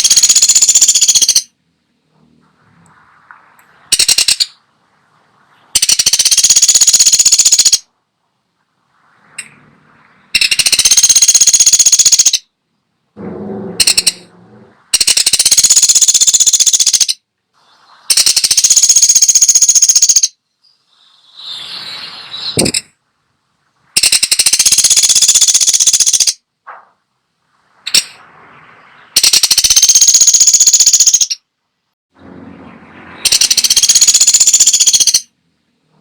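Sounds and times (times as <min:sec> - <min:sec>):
woodpecker rattling trills: 0:00.0 - 0:01.5, 0:03.9 - 0:04.6, 0:05.7 - 0:07.9, 0:10.4 - 0:12.5, 0:13.3 - 0:14.3, 0:14.9 - 0:17.2, 0:18.1 - 0:20.4, 0:24.0 - 0:26.4, 0:29.1 - 0:31.4, 0:33.2 - 0:35.3.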